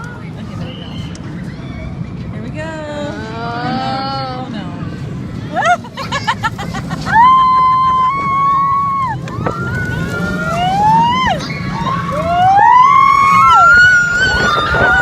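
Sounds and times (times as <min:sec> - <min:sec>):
low rumble of ride: 0:00.0 - 0:15.0
riders screaming: 0:07.0 - 0:15.0.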